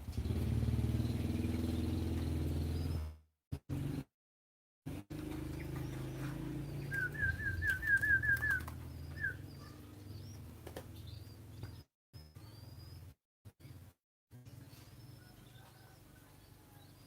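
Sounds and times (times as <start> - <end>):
dove flapping wings: 5.2 - 9.3, 10.5 - 11.0
small bird chirping: 5.4 - 13.9
faint high bird calls: 14.6 - 17.0.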